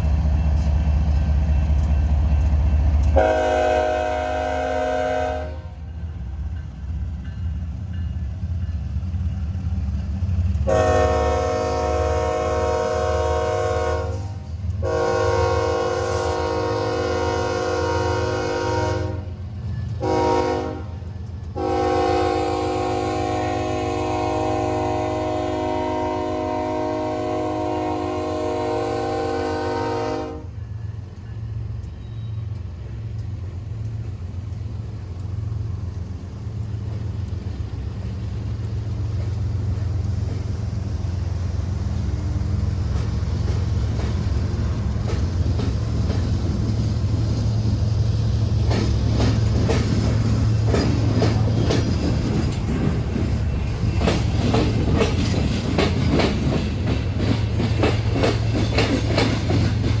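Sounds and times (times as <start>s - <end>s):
train wheels clattering: 0.0s - 60.0s.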